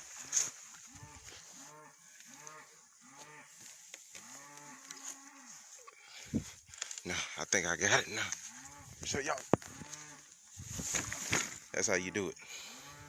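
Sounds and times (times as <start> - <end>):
cattle mooing: 0.2 - 3.6, 4.2 - 5.6, 7.9 - 10.3, 12.5 - 13.0.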